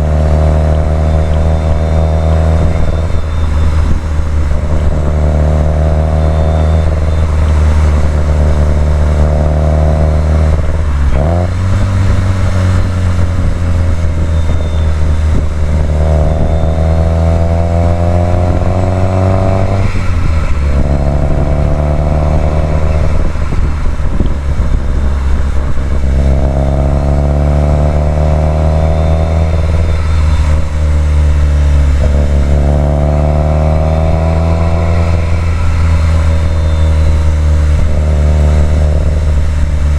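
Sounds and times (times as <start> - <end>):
car engine revving under load: 0.0 - 39.9.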